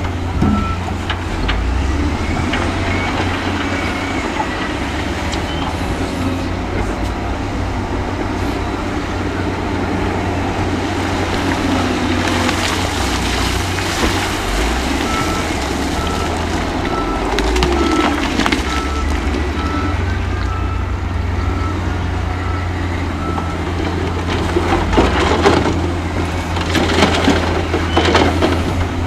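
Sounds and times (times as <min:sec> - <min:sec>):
heavy diesel machinery engine: 0:00.0 - 0:29.0
reversing alarm beeping: 0:00.4 - 0:01.0, 0:15.0 - 0:23.7.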